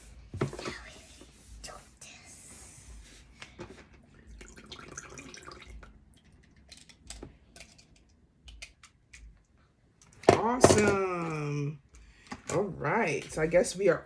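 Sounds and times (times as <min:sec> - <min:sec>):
water drips and splashes: 0:04.3 - 0:09.2.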